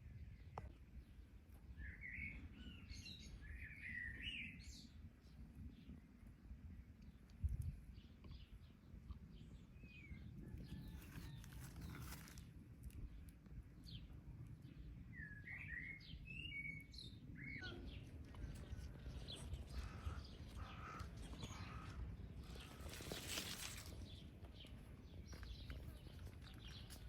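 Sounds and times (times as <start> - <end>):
songbirds chirping: 0.0 - 27.0
wind rumble: 17.0 - 27.0.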